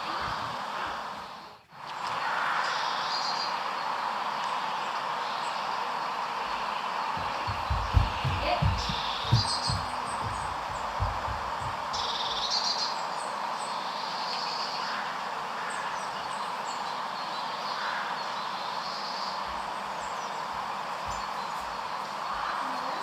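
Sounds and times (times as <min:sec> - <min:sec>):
outdoor background rush: 0:00.0 - 0:23.0
small birds chirping: 0:00.0 - 0:23.0
low thumps: 0:07.2 - 0:12.3.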